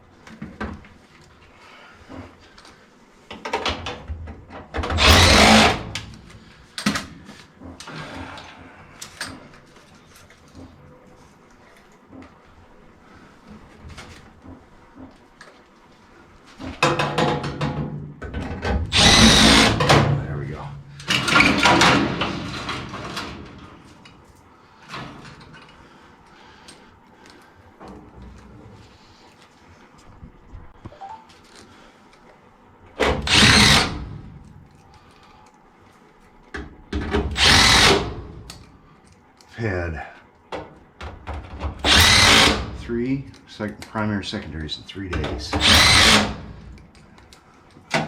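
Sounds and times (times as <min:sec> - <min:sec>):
power driver spinning screw: 0:05.0 - 0:06.0, 0:18.9 - 0:19.8, 0:33.2 - 0:34.0, 0:37.4 - 0:38.1, 0:41.8 - 0:42.7, 0:45.6 - 0:46.4.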